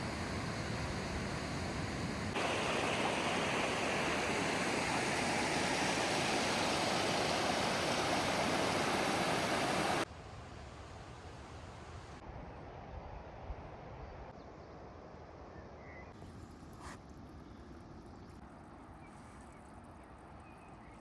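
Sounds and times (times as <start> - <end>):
waterfall rushing: 2.3 - 10.0.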